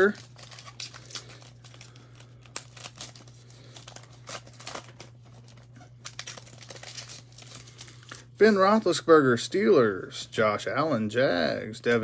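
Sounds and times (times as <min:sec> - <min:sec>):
foil pack tearing and crinkling: 0:00.0 - 0:08.3.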